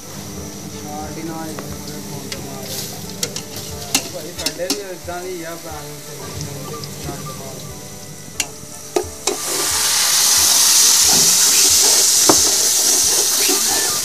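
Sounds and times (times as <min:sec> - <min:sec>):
loud sizzle: 0:00.0 - 0:14.0
onions frying in oil: 0:00.0 - 0:14.0
metal ladle knocking on pot: 0:11.9 - 0:13.8.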